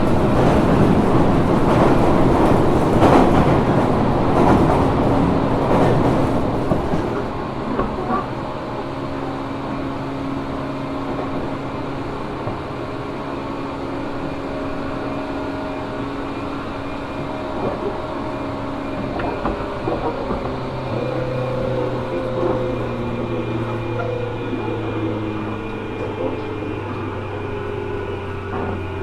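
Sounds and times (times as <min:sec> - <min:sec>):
train interior running rumble: 0:00.0 - 0:29.0.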